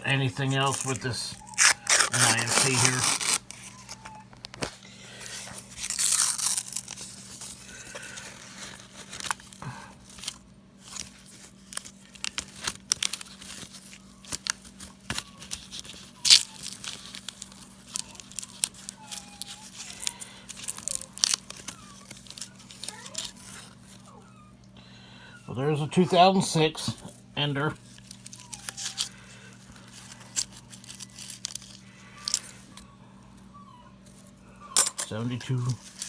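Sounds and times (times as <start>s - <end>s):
paper wrapper crinkling and tearing: 0.1s - 24.2s, 27.8s - 32.8s, 35.1s - 36.0s
coins clicking: 34.8s - 35.1s.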